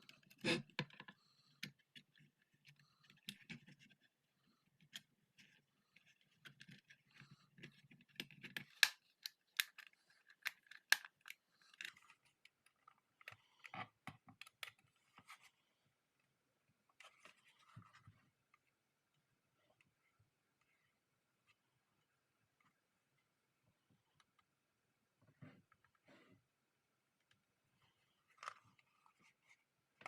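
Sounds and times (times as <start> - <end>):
plastic clicks and rattles: 6.0 - 13.4.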